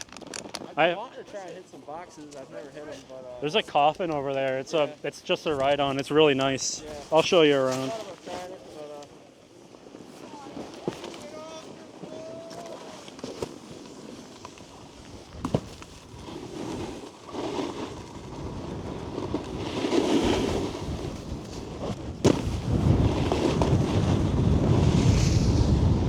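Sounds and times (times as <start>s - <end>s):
snowboard edges scraping snow: 0.3s - 26.0s
wind noise on microphone: 18.0s - 26.0s.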